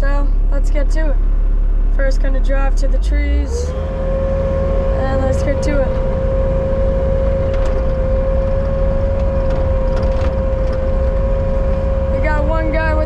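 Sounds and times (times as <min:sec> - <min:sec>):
diesel engine drone: 0:00.0 - 0:13.0
high whine: 0:00.0 - 0:13.0.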